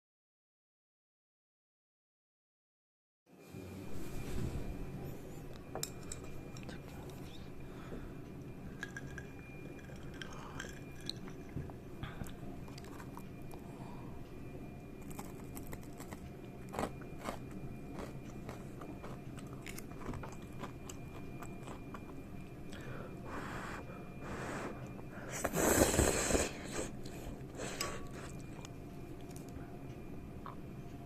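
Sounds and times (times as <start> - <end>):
chewing crunchy fried fish: 15.0 - 22.8.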